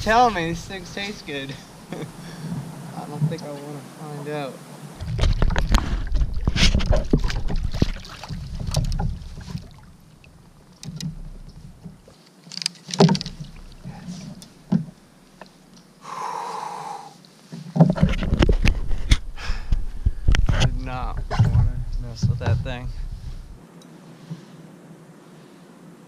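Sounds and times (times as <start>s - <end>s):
wind on microphone: 4.9s - 12.0s, 17.8s - 23.6s
knocks and clicks against kayak: 5.0s - 9.7s, 10.3s - 15.9s, 17.6s - 23.6s.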